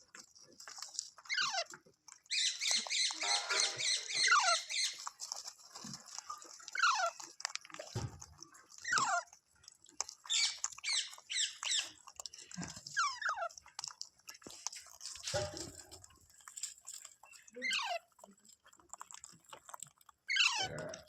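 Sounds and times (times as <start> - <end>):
parrot squawking: 2.3 - 5.0, 10.3 - 11.9, 17.6 - 18.0, 20.3 - 20.8.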